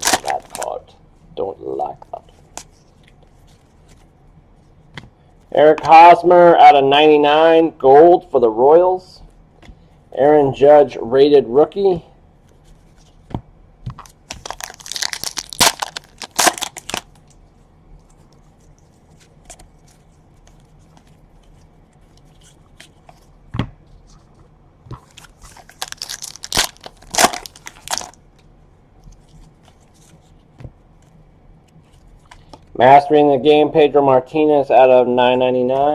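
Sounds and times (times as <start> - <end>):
card pack wrappers tearing: 0.0 - 0.8, 14.0 - 17.2, 25.1 - 28.2.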